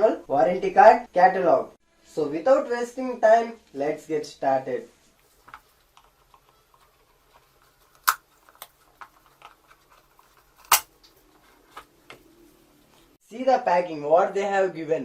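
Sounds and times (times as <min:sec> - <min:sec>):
sharp clicks or snaps: 0:07.9 - 0:08.7, 0:10.6 - 0:10.9.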